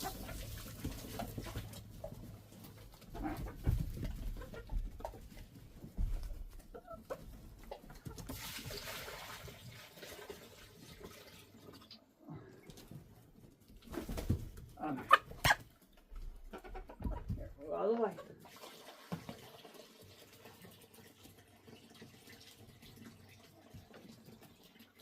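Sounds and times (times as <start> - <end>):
chickens clucking: 0.0 - 8.4, 12.5 - 18.4.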